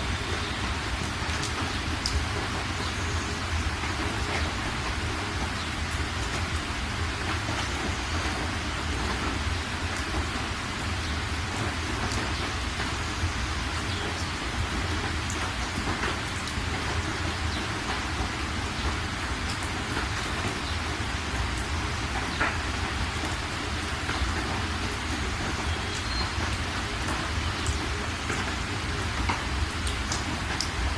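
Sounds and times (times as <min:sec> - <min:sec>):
steady rain hiss: 0:00.0 - 0:30.9.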